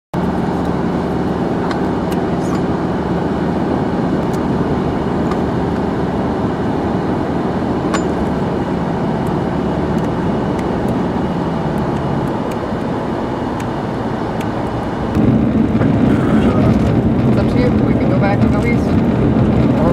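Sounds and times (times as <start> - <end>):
car engine and road noise: 0.1 - 19.9
low steady hum: 0.2 - 19.8.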